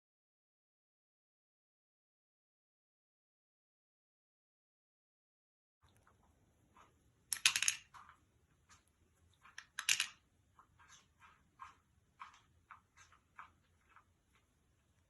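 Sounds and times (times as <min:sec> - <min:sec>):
small sharp clicks and rattles: 0:05.9 - 0:14.5.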